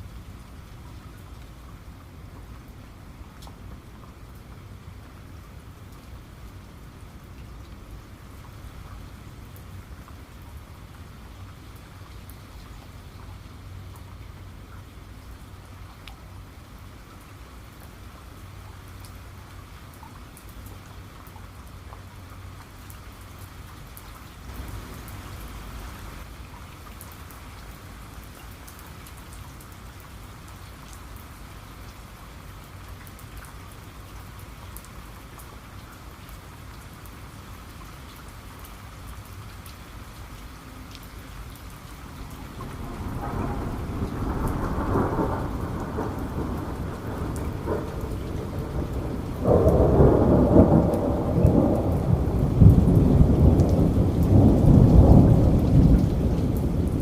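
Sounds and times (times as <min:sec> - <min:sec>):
steady rain: 0:00.0 - 0:57.0
rumbling thunder: 0:42.2 - 0:57.0.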